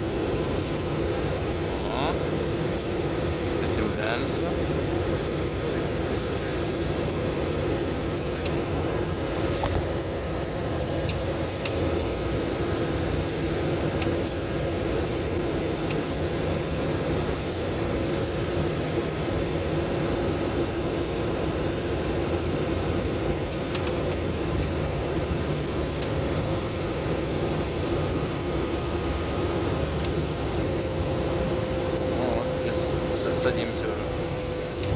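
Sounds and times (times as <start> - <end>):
plane engines drone in cabin: 0.0 - 34.9.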